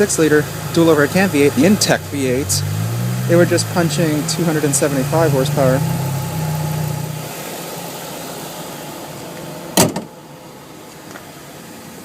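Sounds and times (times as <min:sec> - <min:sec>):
car hood slamming shut: 0:09.8 - 0:10.1.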